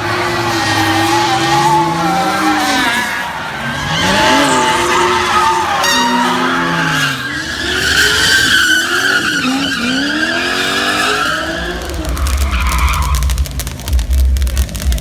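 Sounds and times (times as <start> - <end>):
tyres squealing: 0.0 - 14.8
car engine revving: 0.0 - 15.0
low rumble: 11.8 - 15.0.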